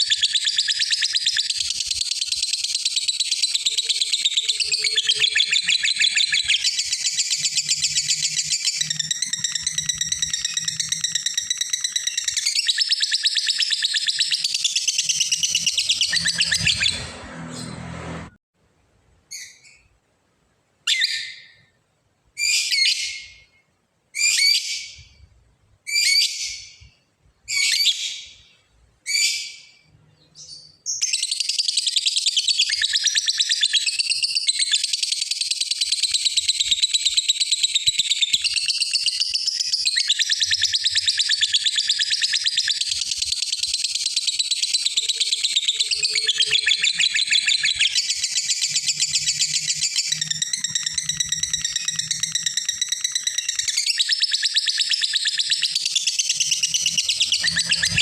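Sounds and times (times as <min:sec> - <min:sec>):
lovebird rapid rattling chatter: 0:47.5 - 0:58.0.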